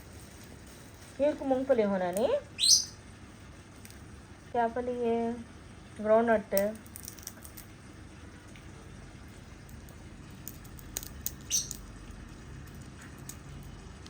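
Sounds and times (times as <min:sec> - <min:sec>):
parrot cracking a nut: 0:06.6 - 0:07.7, 0:09.6 - 0:11.9.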